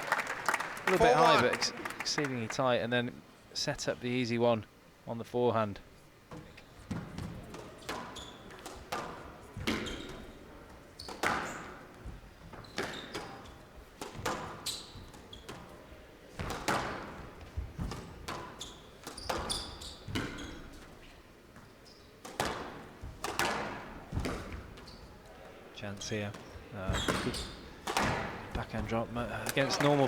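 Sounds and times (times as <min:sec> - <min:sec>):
shoes squeaking on court floor: 0:06.3 - 0:25.4, 0:26.0 - 0:30.0
squash ball cracking off rackets: 0:22.2 - 0:24.6, 0:27.1 - 0:28.6.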